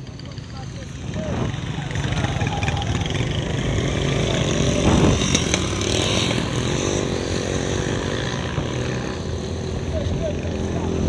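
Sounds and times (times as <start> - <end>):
motorcycle going by: 0.0 - 11.0
street traffic: 0.0 - 11.0.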